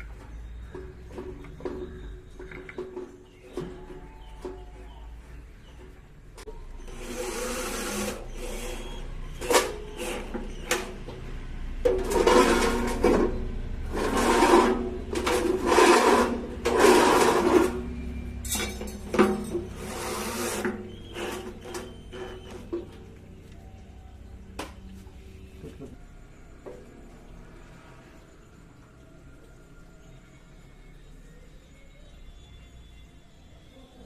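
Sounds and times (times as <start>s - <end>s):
rasping scraping strokes: 12.0s - 18.0s, 19.7s - 22.7s.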